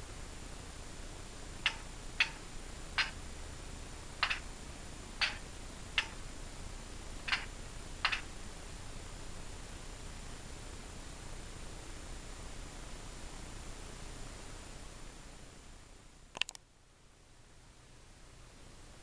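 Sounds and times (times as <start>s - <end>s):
faint steady hiss: 0.0s - 19.0s
short sharp clicks: 16.4s - 16.6s.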